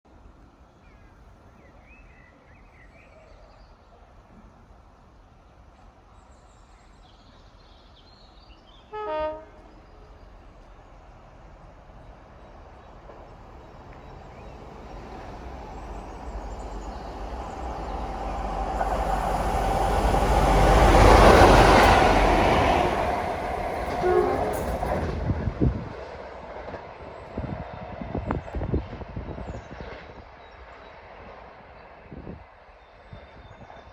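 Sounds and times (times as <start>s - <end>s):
diesel locomotive engines passing: 9.0s - 29.3s
wheels clicking over rail joints: 13.9s - 25.2s.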